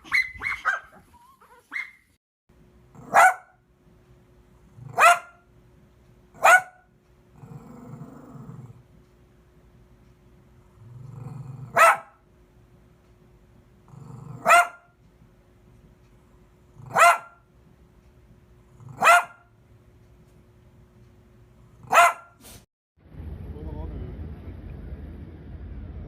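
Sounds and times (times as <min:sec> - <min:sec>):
dog barking: 0:00.0 - 0:02.0, 0:03.0 - 0:03.6, 0:04.8 - 0:05.4, 0:06.4 - 0:06.9, 0:11.6 - 0:12.2, 0:14.4 - 0:14.9, 0:16.8 - 0:17.4, 0:18.9 - 0:19.5, 0:21.8 - 0:22.4
dog growling: 0:07.3 - 0:08.8, 0:10.7 - 0:11.8, 0:13.9 - 0:14.6, 0:18.7 - 0:19.1.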